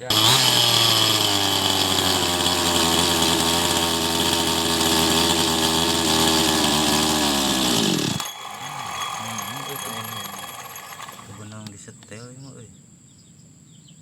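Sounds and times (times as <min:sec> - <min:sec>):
small petrol engine revving: 0:00.0 - 0:11.5.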